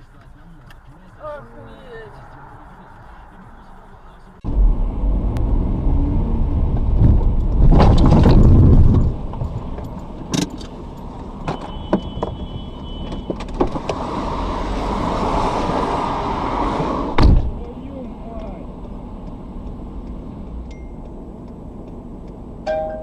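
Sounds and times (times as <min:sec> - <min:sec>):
car driving: 0:00.0 - 0:23.0
heavy low rumble: 0:02.2 - 0:10.1.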